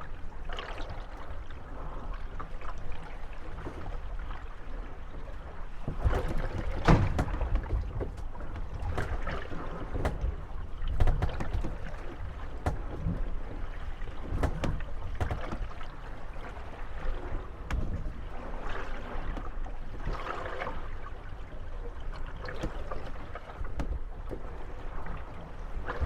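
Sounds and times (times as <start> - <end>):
water lapping: 0.0 - 26.0
boat hulls creaking: 2.5 - 26.0
boat hulls knocking: 5.2 - 18.6, 22.4 - 25.1.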